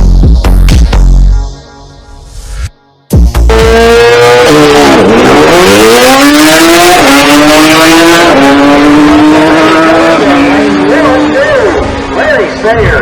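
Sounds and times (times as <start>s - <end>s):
race car engine at full throttle: 3.5s - 13.0s.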